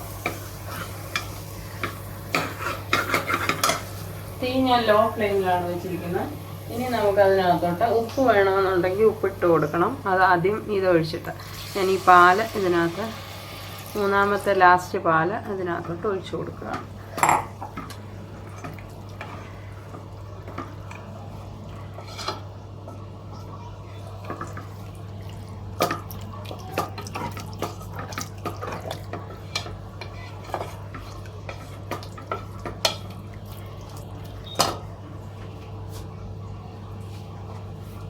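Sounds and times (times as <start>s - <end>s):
spoon clinking and scraping pan: 0.2s - 4.0s.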